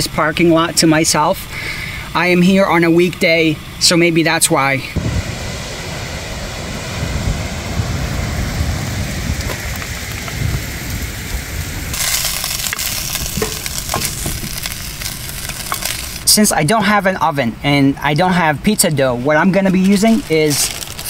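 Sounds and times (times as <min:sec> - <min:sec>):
wind: 0:00.0 - 0:21.0
meat sizzling in a frying pan: 0:11.9 - 0:16.3
wooden spoon scraping a pan: 0:12.0 - 0:16.3.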